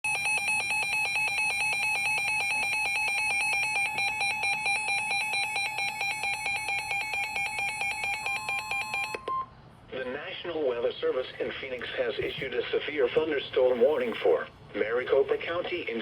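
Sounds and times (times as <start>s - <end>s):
rapid electronic alert beeping: 0.1s - 9.2s.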